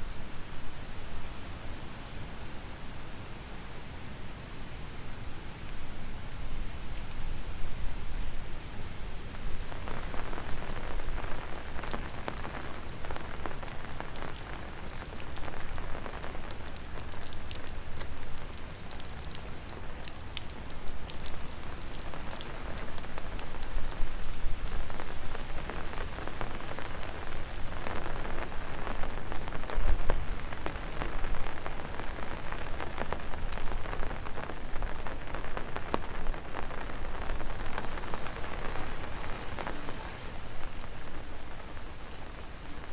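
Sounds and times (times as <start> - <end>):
rain hiss: 0.0 - 42.9
rain drumming on umbrella: 9.1 - 42.9.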